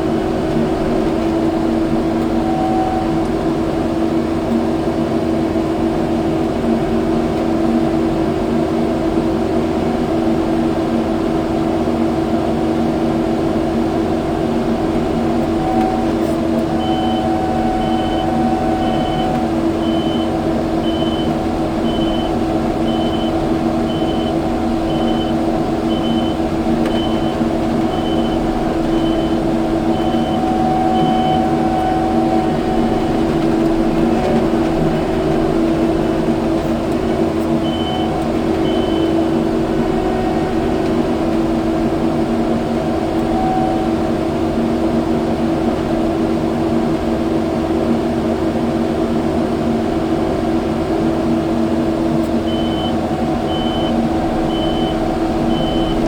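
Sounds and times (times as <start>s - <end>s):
diesel engine running: 0.0s - 56.0s
backup alarm beeping: 1.8s - 3.6s, 15.2s - 33.4s, 37.6s - 40.8s, 43.0s - 44.1s, 52.4s - 56.0s.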